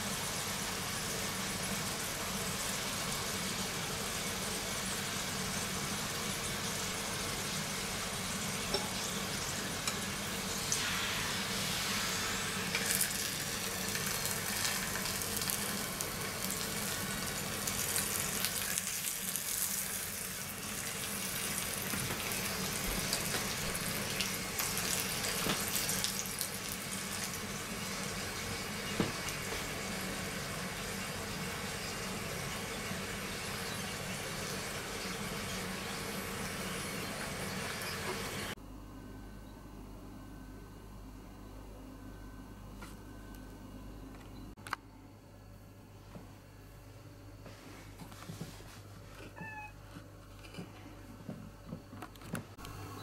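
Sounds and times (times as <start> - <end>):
flatbread sizzling on griddle: 0.0 - 38.6
gas burner hiss: 0.0 - 38.6.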